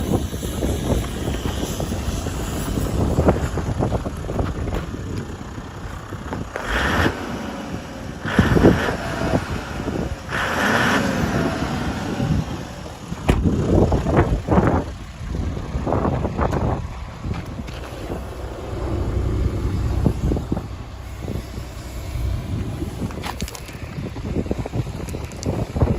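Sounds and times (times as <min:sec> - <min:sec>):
bus diesel engine running: 0:00.0 - 0:25.9
wind buffeting microphone: 0:00.0 - 0:25.9.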